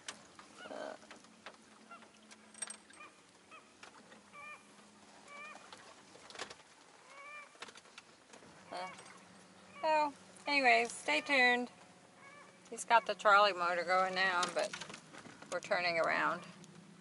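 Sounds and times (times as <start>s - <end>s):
bird calling: 0.5s - 1.1s, 1.8s - 6.0s, 7.0s - 7.6s, 8.6s - 14.7s.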